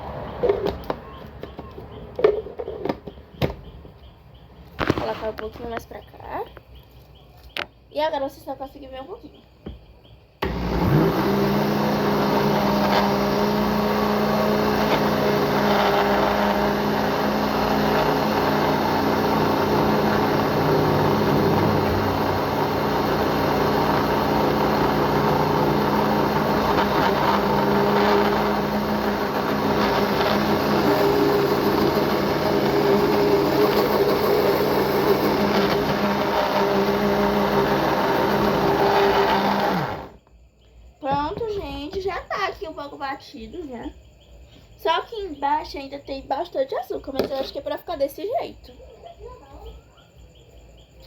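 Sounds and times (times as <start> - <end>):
electric blender whirring: 10.4 - 40.2.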